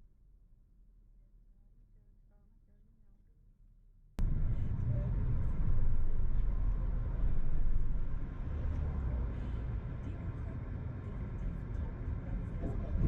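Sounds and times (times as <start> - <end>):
car road and engine rumble: 4.2 - 13.0.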